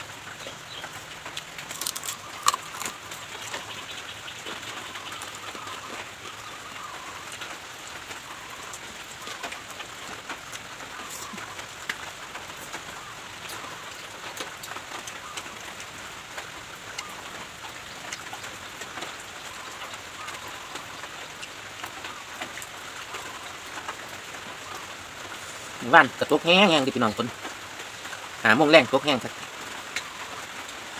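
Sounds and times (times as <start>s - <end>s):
light rain hissing: 0.0s - 30.9s
raindrops pattering: 0.0s - 30.9s.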